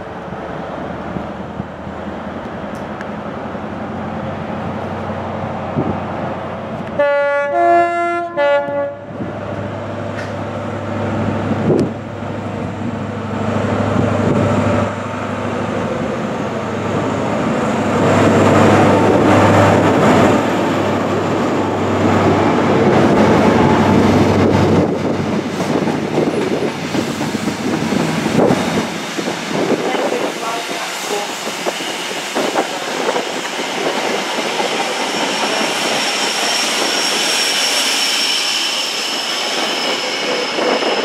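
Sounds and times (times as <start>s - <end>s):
diesel train hum: 0.0s - 41.0s
two-tone train horn: 7.0s - 9.1s.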